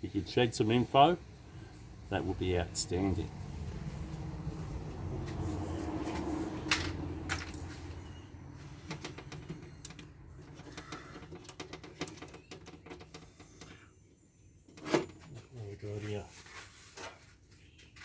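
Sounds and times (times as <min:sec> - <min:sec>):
parts clicking and tapping: 0:08.8 - 0:13.8.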